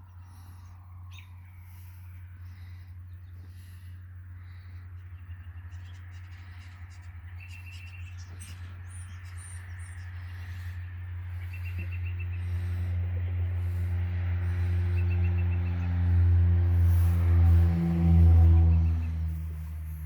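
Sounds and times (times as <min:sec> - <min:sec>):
steady low hum: 0:00.0 - 0:20.0
droning musical tone: 0:08.9 - 0:20.0.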